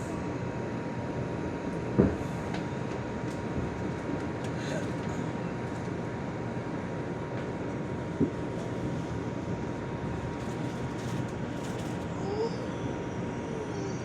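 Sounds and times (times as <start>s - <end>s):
faint constant whine: 0.0s - 14.0s
subway car rumbling on track: 0.0s - 14.0s.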